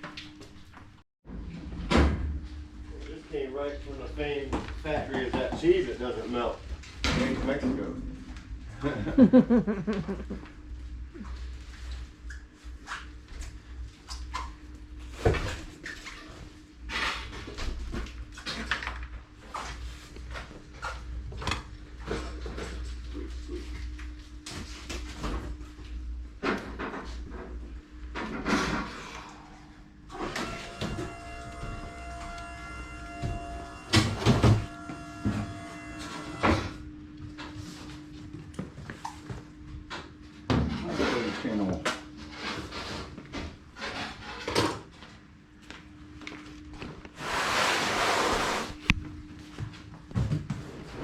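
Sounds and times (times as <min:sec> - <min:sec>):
steady hum: 0:19.3 - 0:40.4.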